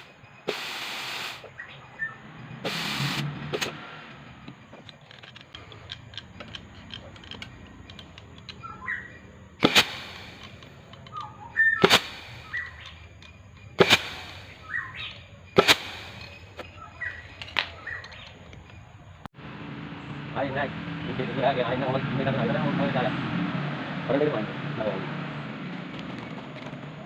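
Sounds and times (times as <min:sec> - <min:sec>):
light clicks: 0:03.6 - 0:09.0.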